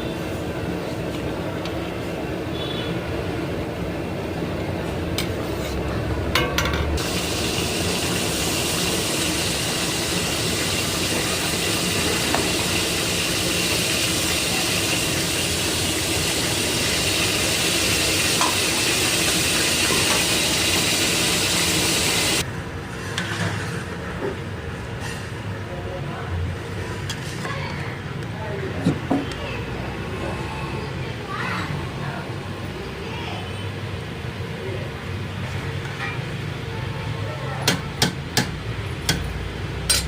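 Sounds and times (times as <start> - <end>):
gravy hissing in a pot: 7.0 - 22.4.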